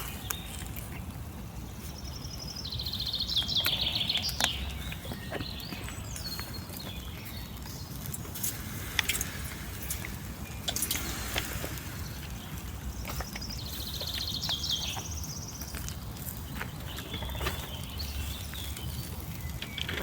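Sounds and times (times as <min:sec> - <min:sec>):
outdoor background noise: 0:00.0 - 0:20.0
songbird trilling: 0:01.9 - 0:08.1, 0:09.9 - 0:15.7.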